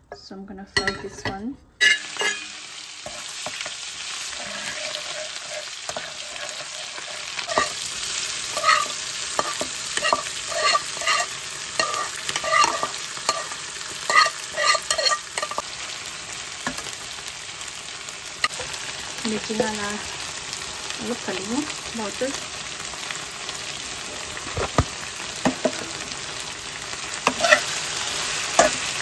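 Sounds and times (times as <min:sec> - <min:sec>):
spatula scraping metal pan: 0:01.8 - 0:15.7, 0:27.2 - 0:29.0
oil sizzling in pan: 0:01.8 - 0:29.0.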